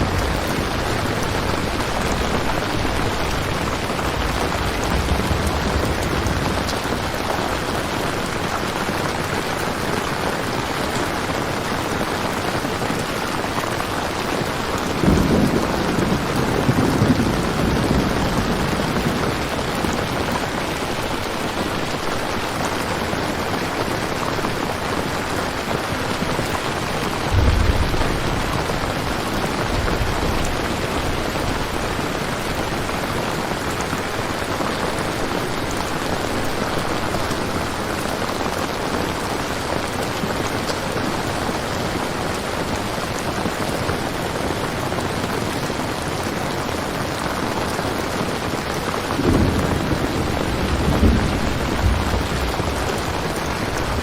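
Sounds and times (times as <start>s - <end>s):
low rumble of thunder: 0.0s - 10.3s, 13.7s - 23.2s, 24.8s - 39.9s, 48.3s - 54.0s
heavy rain: 0.0s - 54.0s.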